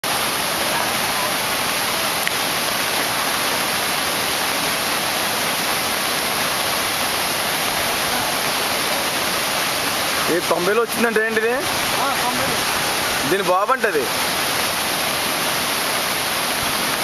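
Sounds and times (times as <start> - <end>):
rainwater rushing: 0.0 - 17.0.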